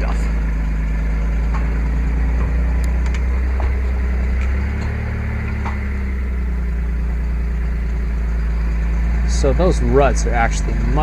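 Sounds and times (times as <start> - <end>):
truck engine under load: 0.0 - 11.0.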